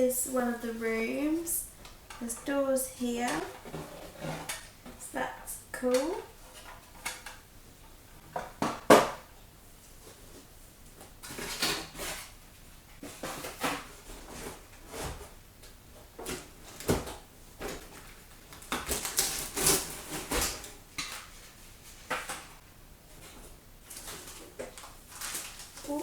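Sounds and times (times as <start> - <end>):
packaging rustling: 23.2 - 26.0
plastic parts clattering: 23.9 - 26.0.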